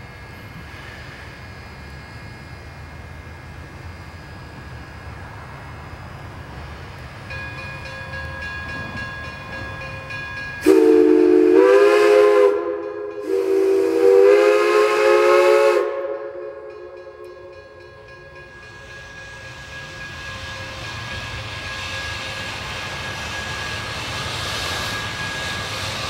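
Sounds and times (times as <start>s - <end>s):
steam locomotive whistle blasts: 10.6s - 18.1s.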